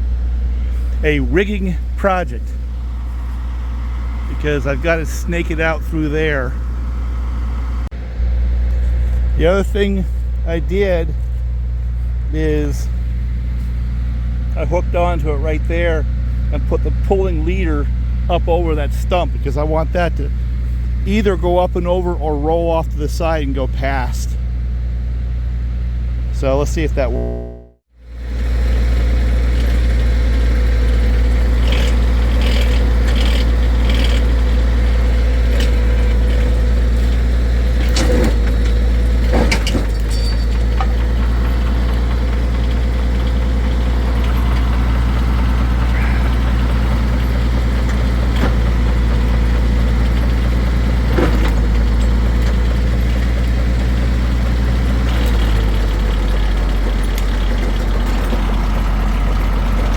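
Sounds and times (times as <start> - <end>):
tractor engine running: 0.0 - 25.9, 26.9 - 59.9
winch pulling log: 29.6 - 59.9.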